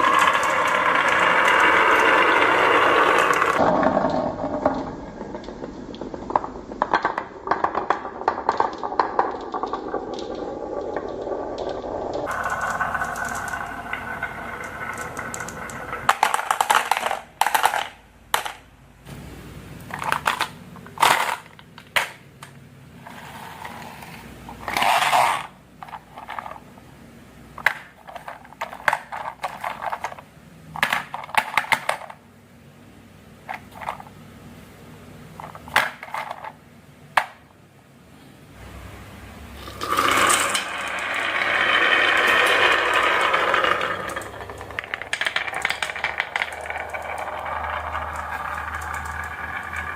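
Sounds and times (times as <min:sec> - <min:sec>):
marbles clacking on wood: 0:00.0 - 0:18.7, 0:24.5 - 0:26.7, 0:27.6 - 0:32.2, 0:39.6 - 0:49.9
marbles rolling on wooden track: 0:00.0 - 0:18.7, 0:19.9 - 0:22.2, 0:23.0 - 0:26.8, 0:27.6 - 0:32.2, 0:33.5 - 0:34.2, 0:35.4 - 0:36.6, 0:39.6 - 0:49.9.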